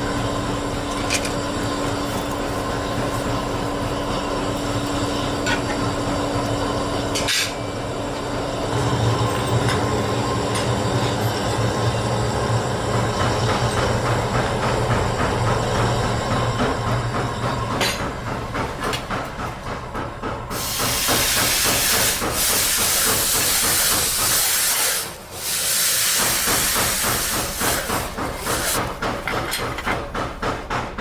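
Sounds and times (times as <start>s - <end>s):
fast mechanical clatter: 16.8s - 31.0s
loud hiss: 20.6s - 28.8s.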